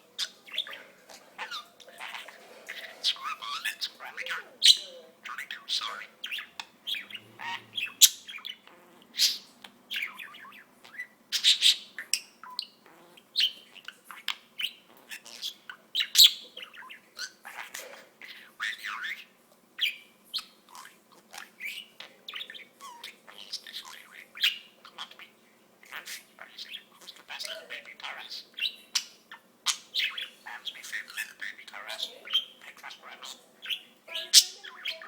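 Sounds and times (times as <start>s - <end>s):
budgerigar chirping and squawking: 0.0s - 35.0s.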